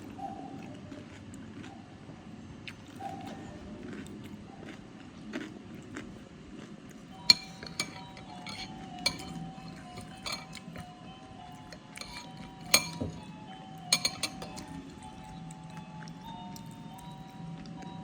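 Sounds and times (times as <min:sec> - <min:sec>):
cutlery clinking against a bowl: 0:07.1 - 0:15.4.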